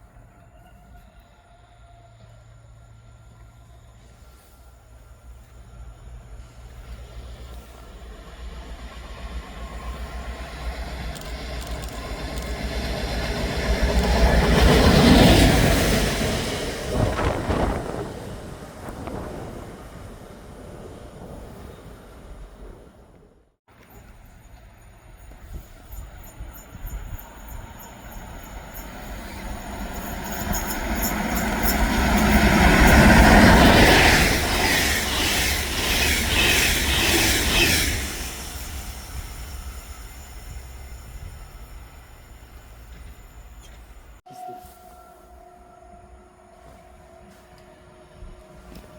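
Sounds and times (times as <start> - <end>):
train rumble: 0.0 - 48.9
wheels clicking on track: 6.6 - 16.0.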